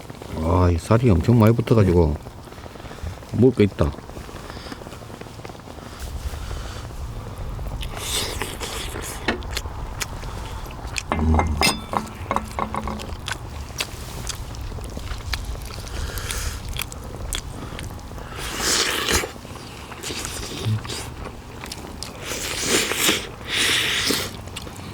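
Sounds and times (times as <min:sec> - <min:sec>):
person chewing meat: 0:07.8 - 0:11.1, 0:13.7 - 0:24.9
loud clatter: 0:11.1 - 0:13.3.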